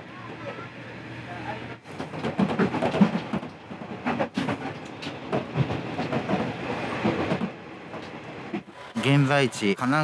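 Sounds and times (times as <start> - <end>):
railcar running rumble: 0.0 - 10.0
wheels clattering over rails: 1.9 - 9.5.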